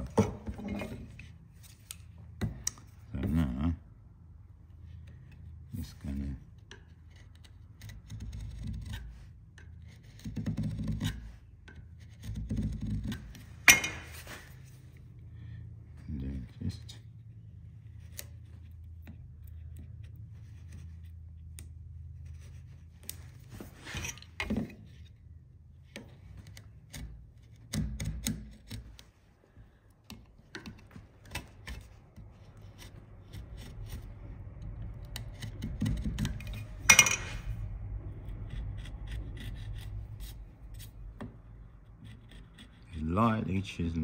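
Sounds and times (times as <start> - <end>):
chisel scraping wood: 6.5 - 15.0, 17.8 - 29.2, 30.0 - 44.0.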